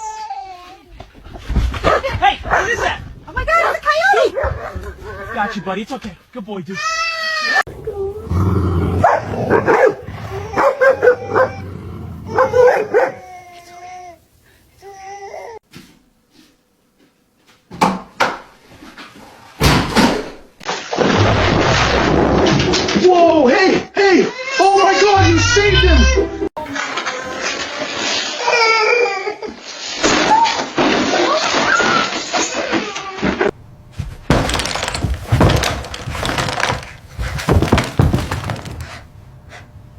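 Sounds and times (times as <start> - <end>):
dog whining: 7.5 - 13.4
sharp knocks and thumps: 34.0 - 39.0.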